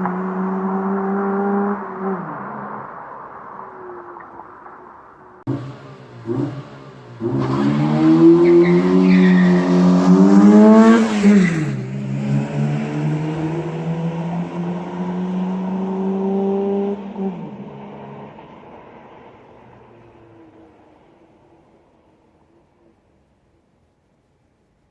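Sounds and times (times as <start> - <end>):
car engine revving and accelerating: 0.0 - 4.2, 5.4 - 19.4.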